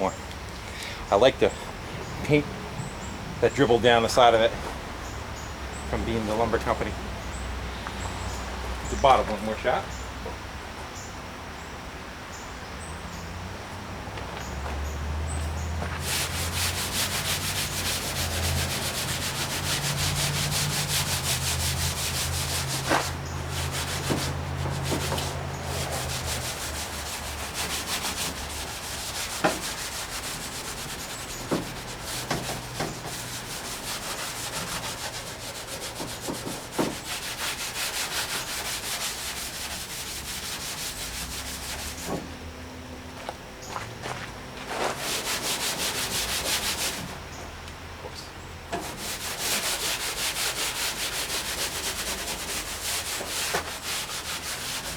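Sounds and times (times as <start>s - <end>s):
abrasive rubbing on sheet metal: 15.9s - 42.3s, 44.7s - 47.2s, 48.8s - 54.9s.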